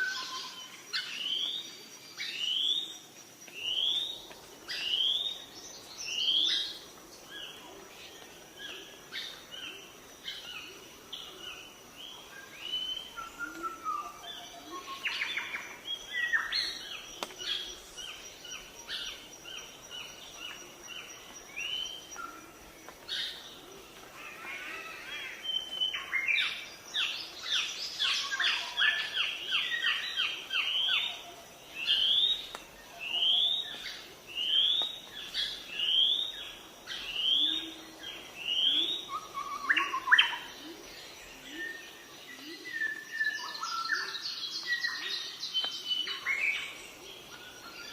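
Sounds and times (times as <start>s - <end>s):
songbirds chirping: 0.0s - 47.9s.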